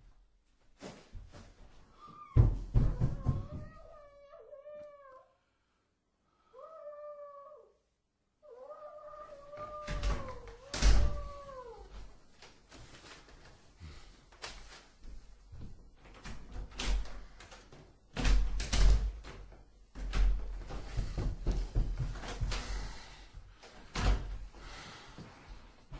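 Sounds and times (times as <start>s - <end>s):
heavy thumps and knocks: 2.4s - 3.9s, 20.0s - 22.8s
long wavering cry: 6.5s - 7.8s.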